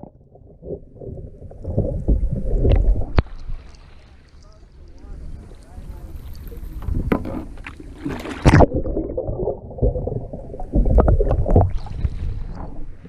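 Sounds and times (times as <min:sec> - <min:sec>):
water splashing and sloshing: 0:00.0 - 0:13.0
loud splash: 0:08.0 - 0:12.5.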